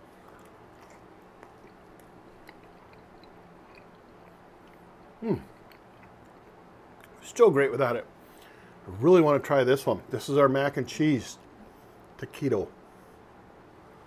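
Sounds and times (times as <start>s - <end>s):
food ticking in mouth: 0.0s - 7.2s
person chewing food: 0.0s - 7.2s
man murmuring: 5.2s - 5.6s.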